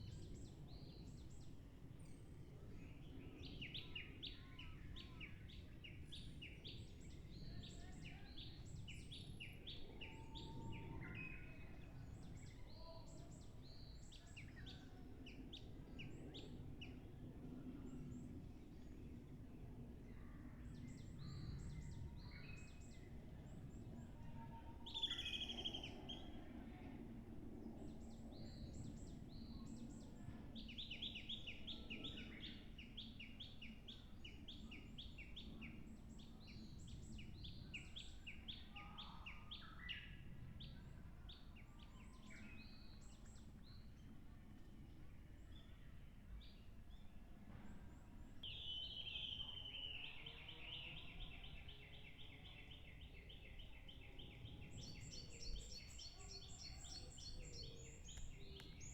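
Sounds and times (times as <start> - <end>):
small songbirds calling: 48.4 - 58.9.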